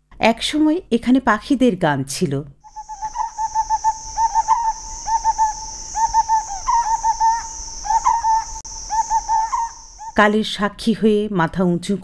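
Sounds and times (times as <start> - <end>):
whistled bird calls: 2.6 - 10.2
high insect drone: 2.7 - 10.6.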